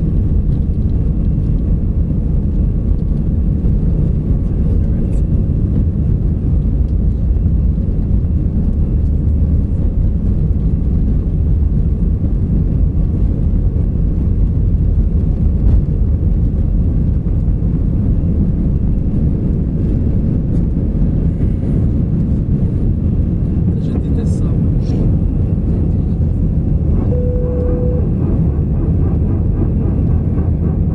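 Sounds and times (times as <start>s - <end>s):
airplane cabin engine rumble: 0.0s - 30.9s.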